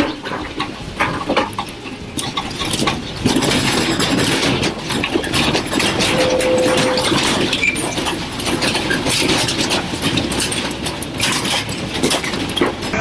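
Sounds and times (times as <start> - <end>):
room rattling in earthquake: 0.0 - 13.0
low rumble: 5.7 - 7.7.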